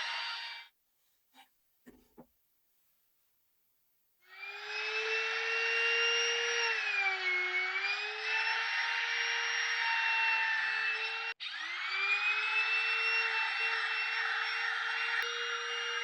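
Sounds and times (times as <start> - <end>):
router cutting wood: 4.3 - 16.0.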